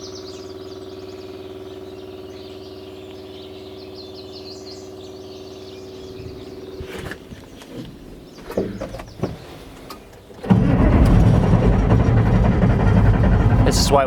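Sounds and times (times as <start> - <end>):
birds chirping: 0.0 - 14.0
engine idling: 9.8 - 14.0.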